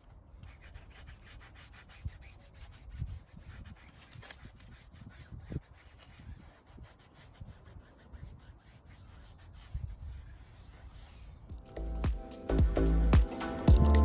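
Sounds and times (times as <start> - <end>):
towel rubbing a surface: 0.5 - 11.5
soft low thumps: 11.5 - 14.0.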